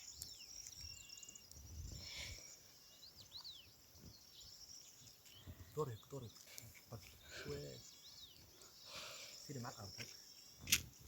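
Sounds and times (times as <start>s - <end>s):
bird chirps: 0.0s - 11.0s
high insect trill: 0.0s - 11.0s
wind rumble on microphone: 1.6s - 2.1s.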